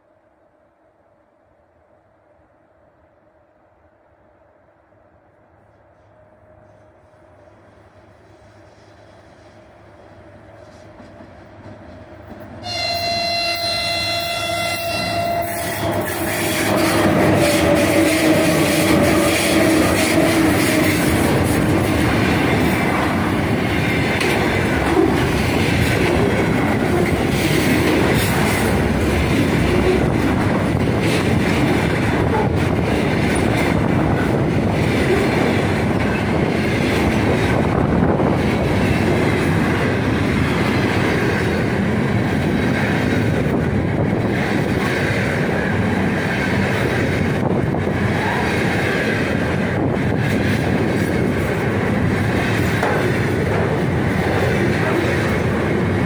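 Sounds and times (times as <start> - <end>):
train wheels clattering on rails: 8.4 - 56.0
locomotive horn chord: 12.6 - 17.6.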